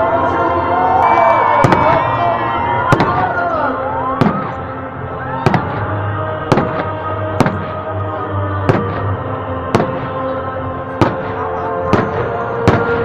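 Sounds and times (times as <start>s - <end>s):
music playing: 0.0s - 13.0s
fireworks bursting: 1.5s - 2.1s, 2.9s - 3.4s, 4.2s - 4.7s, 5.4s - 8.0s, 8.7s - 10.2s, 11.0s - 13.0s.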